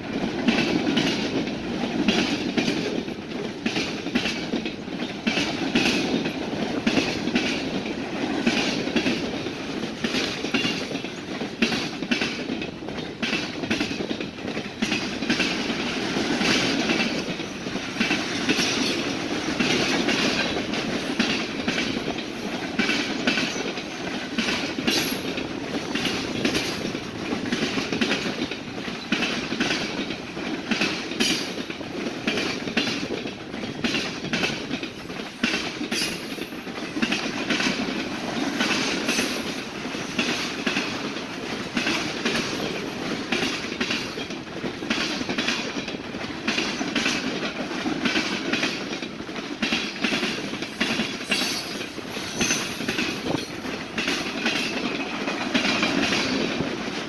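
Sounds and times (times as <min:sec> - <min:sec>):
train wheels clickety-clack: 0:00.0 - 0:57.0.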